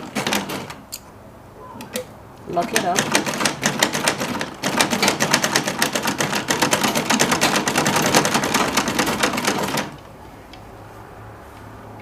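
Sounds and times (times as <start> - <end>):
sewing machine stitching: 2.6 - 10.0.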